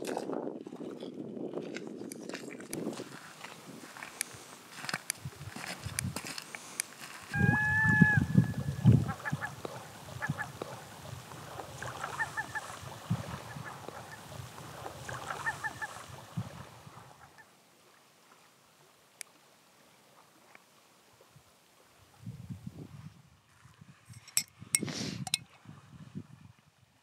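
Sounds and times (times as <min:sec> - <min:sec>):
waves lapping on pebbles: 0:00.0 - 0:07.3, 0:09.3 - 0:17.2
birds honking: 0:07.3 - 0:10.8, 0:11.9 - 0:12.8.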